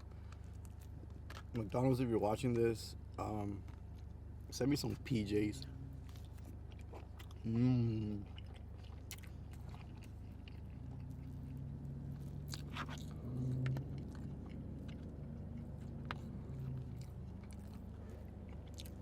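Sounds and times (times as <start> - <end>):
close chewing with mouth smacks: 0.0 - 1.8, 3.3 - 19.0
person humming mmm: 7.4 - 8.2.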